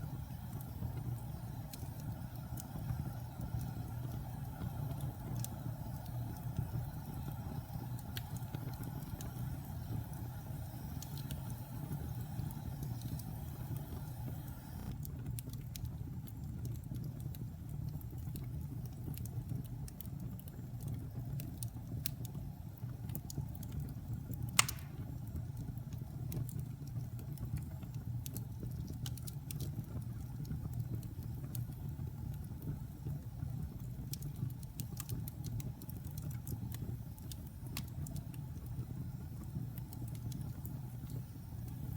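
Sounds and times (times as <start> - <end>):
wood fire crackling: 0.0 - 41.9
loud fire pop: 24.6 - 25.2.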